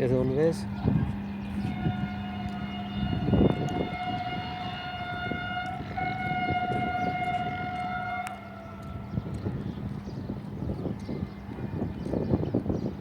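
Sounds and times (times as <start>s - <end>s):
low rumble of train: 0.0s - 13.0s
locomotive horn: 0.6s - 9.8s.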